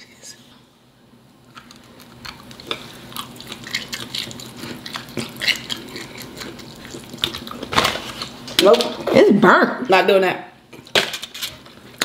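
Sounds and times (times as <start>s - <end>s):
people chewing: 1.4s - 9.1s, 10.7s - 12.0s.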